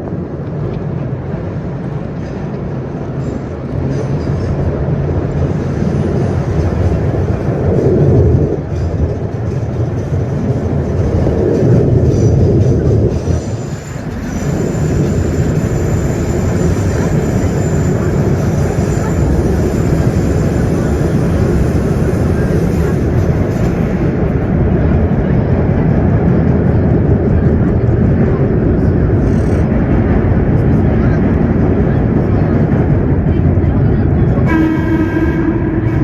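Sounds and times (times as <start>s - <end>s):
subway train rumbling: 0.0s - 36.0s.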